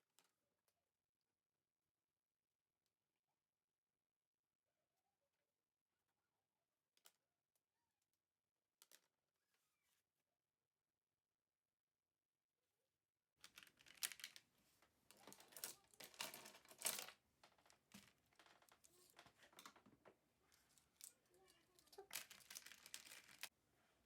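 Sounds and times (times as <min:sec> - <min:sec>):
rustling and crinkling: 0:13.4 - 0:24.0.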